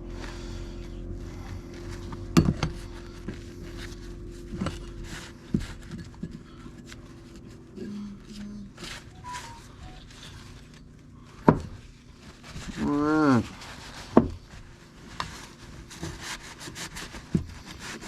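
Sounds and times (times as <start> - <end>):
distant engine drone: 0.0 - 12.0.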